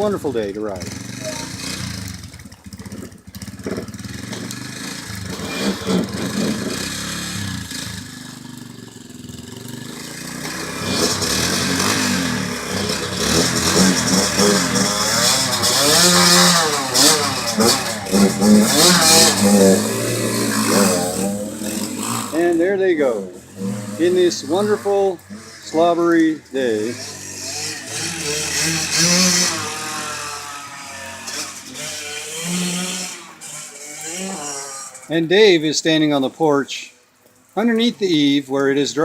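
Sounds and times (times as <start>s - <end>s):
motorcycle engines revving: 0.0s - 35.6s.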